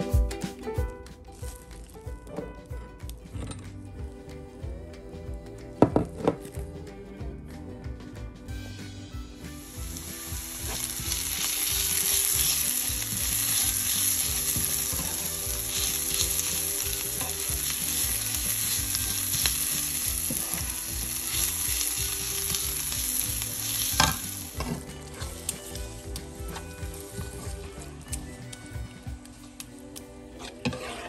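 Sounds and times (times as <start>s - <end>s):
onion sizzling in hot oil: 9.2s - 28.6s
spatula stirring in wok: 30.4s - 31.0s.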